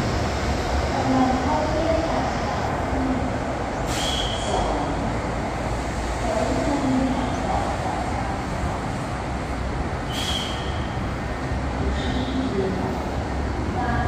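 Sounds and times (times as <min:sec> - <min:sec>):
electric train rumbling: 0:00.0 - 0:14.0
short high squeal: 0:03.9 - 0:04.5, 0:10.1 - 0:10.9.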